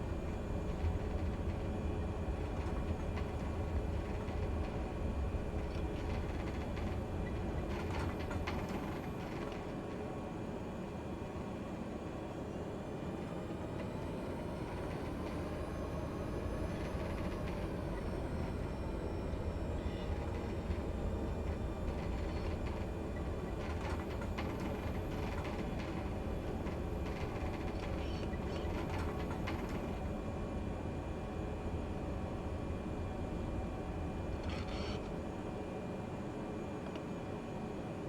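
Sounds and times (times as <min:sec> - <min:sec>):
turboprop engine droning: 0:00.0 - 0:38.0
engine whine: 0:12.8 - 0:37.7.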